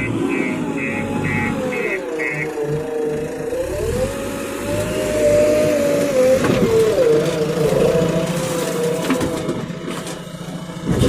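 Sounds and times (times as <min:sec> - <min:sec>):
diesel engine running under load: 0:00.0 - 0:11.0.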